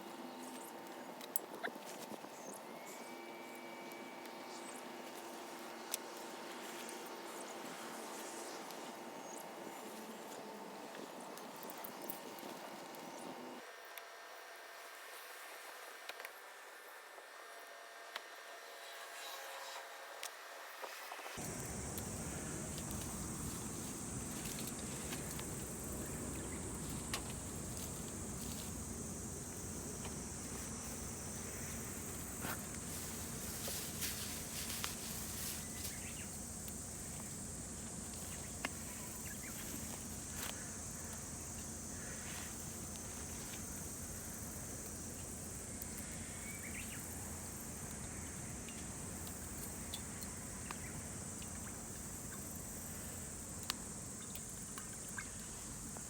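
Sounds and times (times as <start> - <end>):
insects chirring: 21.4 - 56.0.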